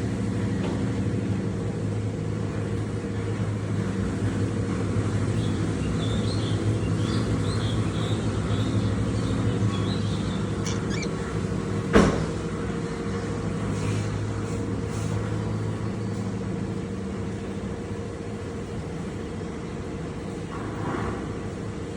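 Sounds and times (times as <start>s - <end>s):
low mechanical hum: 0.0s - 21.9s
lovebirds chirping: 6.2s - 11.8s.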